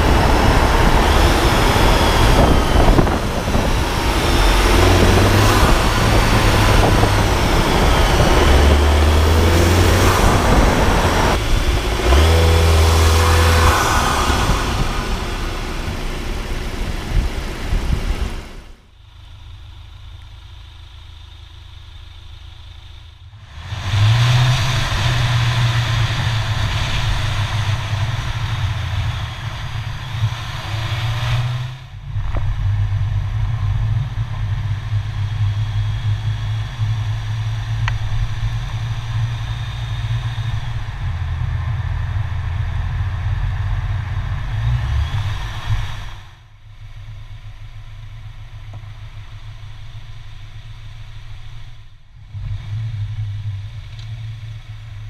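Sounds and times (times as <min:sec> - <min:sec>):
rushing noise: 0:00.0 - 0:18.9, 0:23.4 - 0:42.6
car engine humming: 0:00.0 - 0:55.0.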